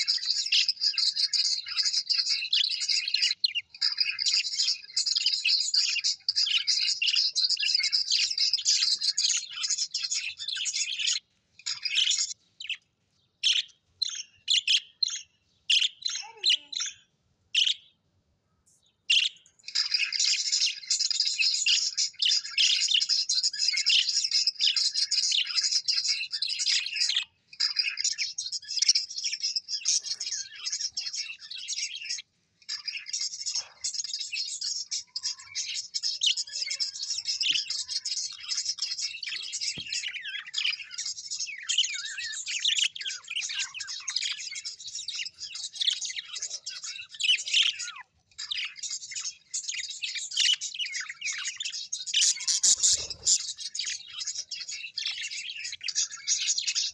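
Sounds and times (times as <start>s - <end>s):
small birds chirping and twittering: 0.0s - 56.9s.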